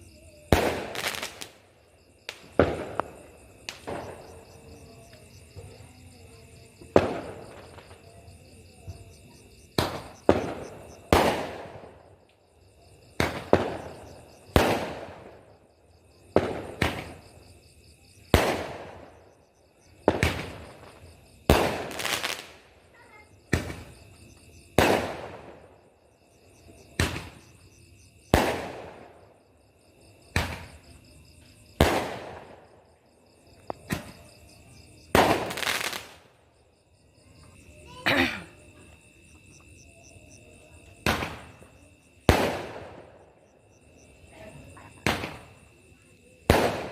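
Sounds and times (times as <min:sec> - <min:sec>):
fireworks bangs: 0:00.5 - 0:01.7, 0:02.3 - 0:04.7, 0:06.8 - 0:08.0, 0:09.6 - 0:12.1, 0:13.1 - 0:15.5, 0:16.3 - 0:17.2, 0:18.2 - 0:19.3, 0:20.0 - 0:22.7, 0:23.5 - 0:24.0, 0:24.6 - 0:25.8, 0:26.8 - 0:27.6, 0:28.2 - 0:29.4, 0:30.3 - 0:32.8, 0:33.6 - 0:36.4, 0:41.0 - 0:43.3, 0:45.0 - 0:45.6, 0:46.4 - 0:46.9.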